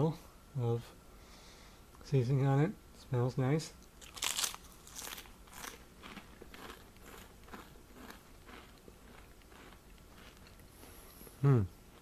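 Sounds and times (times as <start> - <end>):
potato chips being chewed: 4.0 - 11.2.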